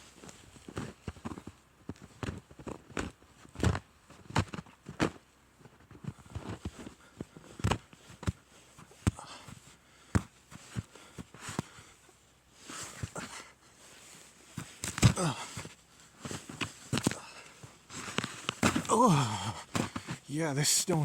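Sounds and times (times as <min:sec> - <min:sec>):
footsteps crunching through snow: 0:12.6 - 0:21.0.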